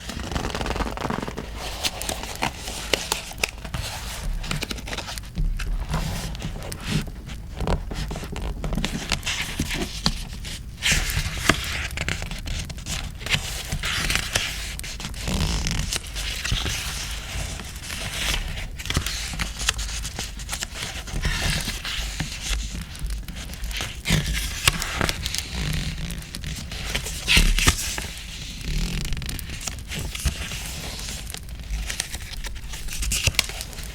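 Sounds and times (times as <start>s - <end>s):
paper scraping and rustling: 0.0s - 33.9s.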